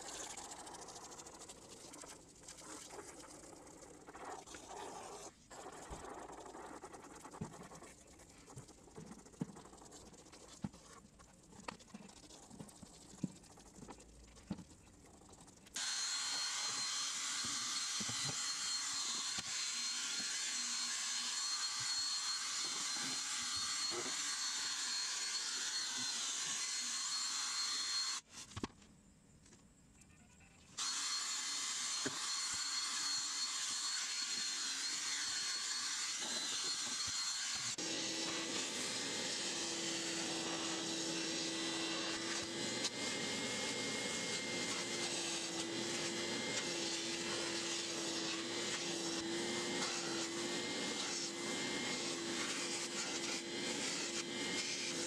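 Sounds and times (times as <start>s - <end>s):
drill motor whine with scrubbing: 15.8s - 28.2s, 30.8s - 55.0s.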